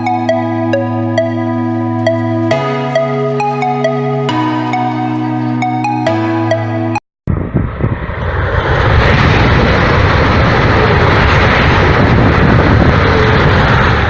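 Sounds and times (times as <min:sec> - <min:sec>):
high-speed train passing: 0:07.3 - 0:14.0.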